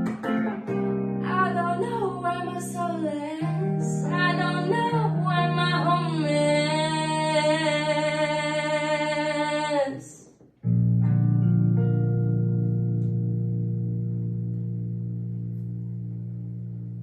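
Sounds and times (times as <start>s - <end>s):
guitar-like chords: 0.0s - 9.4s, 10.6s - 17.0s
woman singing: 1.2s - 10.3s.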